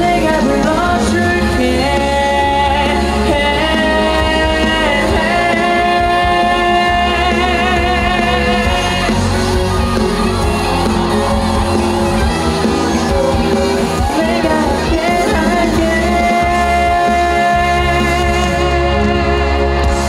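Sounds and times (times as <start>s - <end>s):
man singing with vibrato: 0.0s - 9.6s, 14.0s - 19.8s
amplified band playing: 0.0s - 20.0s.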